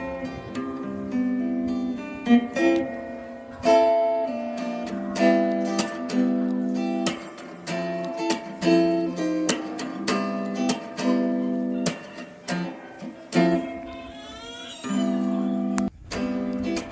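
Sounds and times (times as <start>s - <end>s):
acoustic guitar strumming chords: 0.0s - 16.9s.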